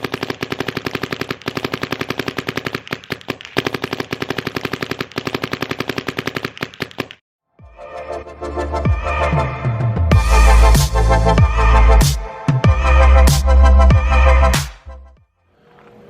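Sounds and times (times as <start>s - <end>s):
paintball marker firing rapidly: 0.0s - 7.2s
electronic music: 7.6s - 15.2s.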